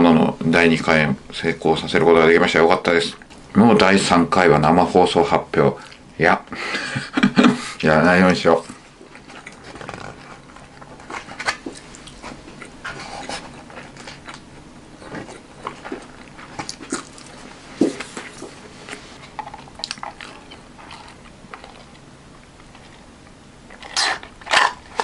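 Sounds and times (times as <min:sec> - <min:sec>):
person chewing food: 0:08.7 - 0:25.0.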